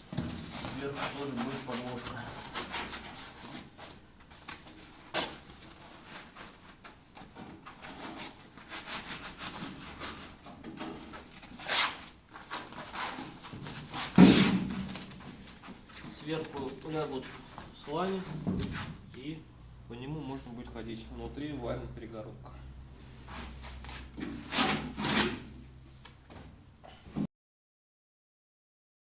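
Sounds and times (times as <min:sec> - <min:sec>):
knocks and rustling from handling: 0:00.0 - 0:19.3, 0:23.4 - 0:27.3.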